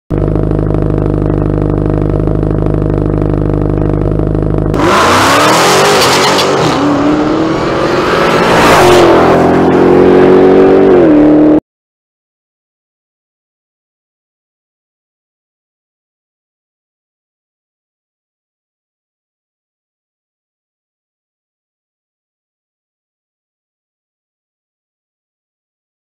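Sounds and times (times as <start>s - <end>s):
car engine idling: 0.1s - 5.3s
car engine accelerating hard: 0.1s - 11.6s.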